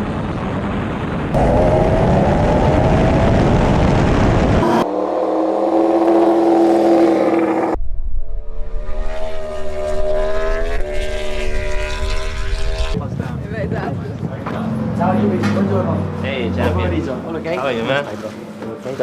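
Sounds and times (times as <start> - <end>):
racing engines revving high: 4.5 - 7.8, 8.4 - 13.0.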